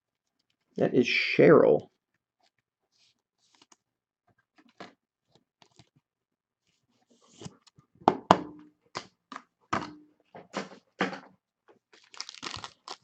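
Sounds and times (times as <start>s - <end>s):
knocks and taps on hard surface: 8.0s - 8.7s
crinkling: 11.7s - 13.0s.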